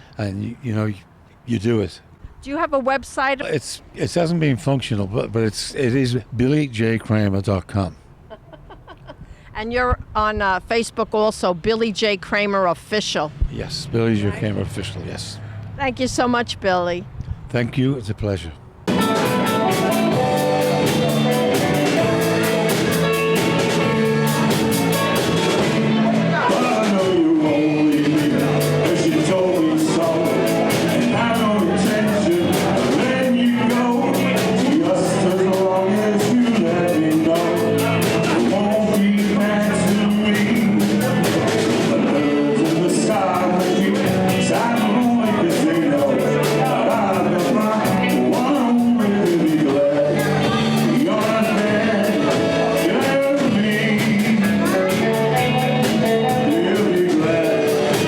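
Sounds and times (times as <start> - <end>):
rock band playing live: 18.9 - 58.0
steady drum beat: 18.9 - 58.0
person singing: 19.5 - 58.0.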